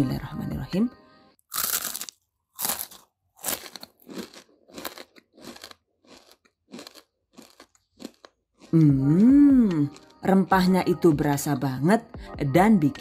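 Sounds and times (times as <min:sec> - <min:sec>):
crisp chip crunching: 0:01.5 - 0:09.0.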